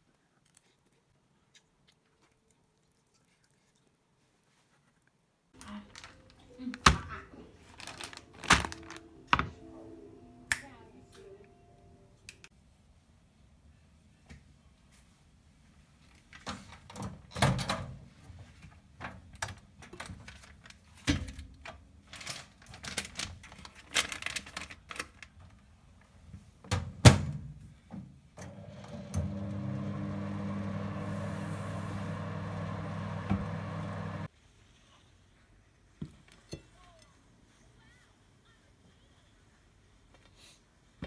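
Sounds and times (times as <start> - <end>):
electric appliance hum: 28.4 - 34.3.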